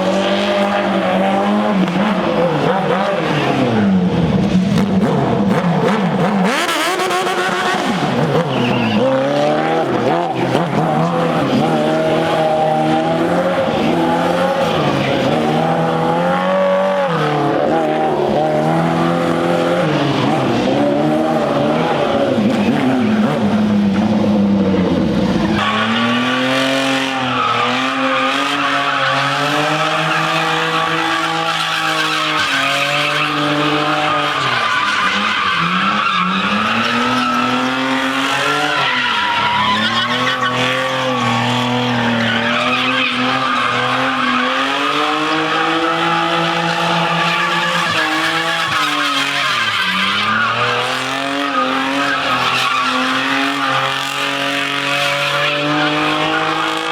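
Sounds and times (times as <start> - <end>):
engine revving at high revs: 4.7 - 24.0, 39.8 - 56.9.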